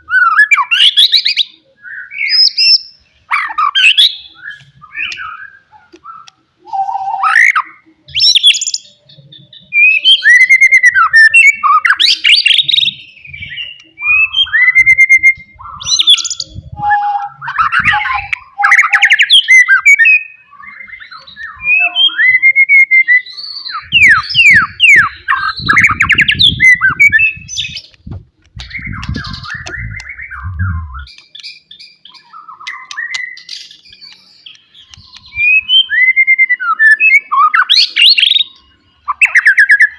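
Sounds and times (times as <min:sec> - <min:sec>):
bird singing whistles and trills: 0:00.0 - 0:39.9
low rumble: 0:27.6 - 0:31.1.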